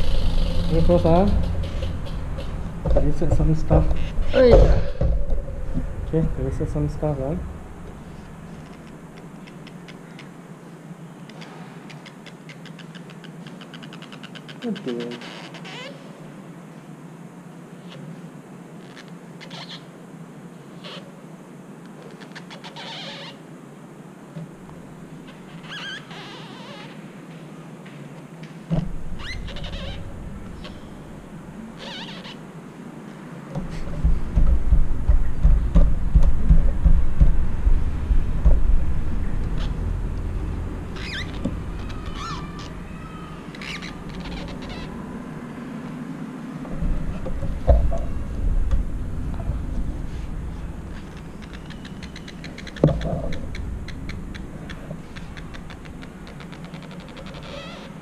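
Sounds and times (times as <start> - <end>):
loud low rumble: 0.0 - 8.2, 34.0 - 41.9
birds chirping: 0.0 - 16.2, 28.4 - 58.0.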